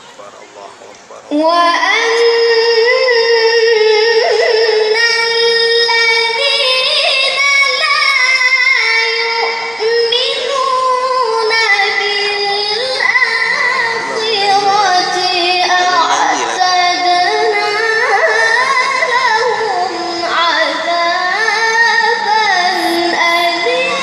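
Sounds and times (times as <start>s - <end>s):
child reciting melodically: 0.0s - 24.0s.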